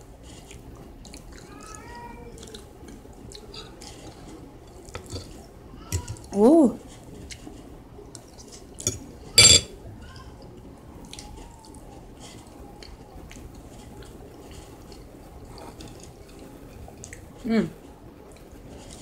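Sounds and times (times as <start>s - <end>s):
metal utensil clinking on plate: 8.8s - 9.7s.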